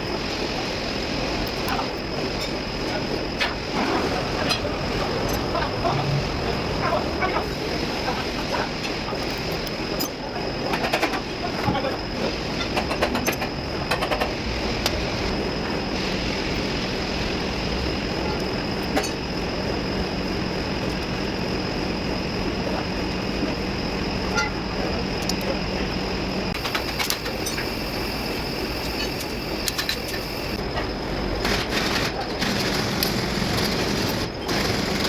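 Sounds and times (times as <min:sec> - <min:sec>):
constant high whine: 0:00.0 - 0:35.0
truck diesel engine running: 0:03.7 - 0:08.7
clicking: 0:28.8 - 0:30.6.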